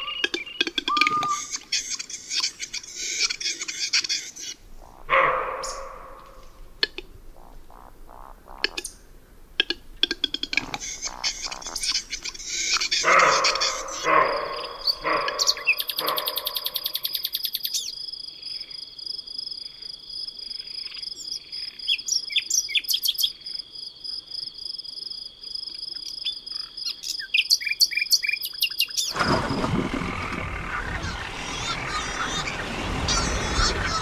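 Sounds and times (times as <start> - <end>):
bird chirps: 0.0 - 6.5, 10.6 - 18.0, 20.7 - 23.4, 26.0 - 34.0
insects trilling: 10.1 - 34.0
fast pulsing insect call: 24.4 - 34.0
broad rushing noise: 29.1 - 34.0.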